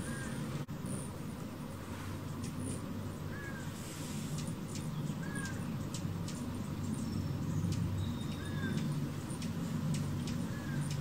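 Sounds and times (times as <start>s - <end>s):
sharp high ticks: 8.7s - 11.0s.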